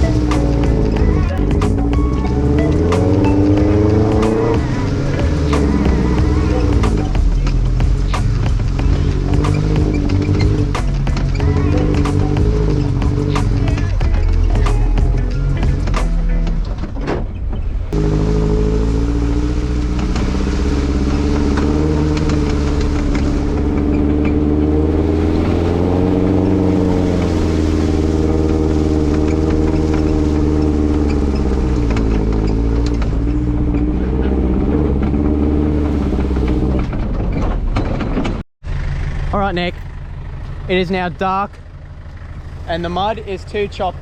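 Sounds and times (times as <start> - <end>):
engine running hard under load: 0.0 - 17.0
clatter: 0.0 - 18.1, 28.4 - 40.7.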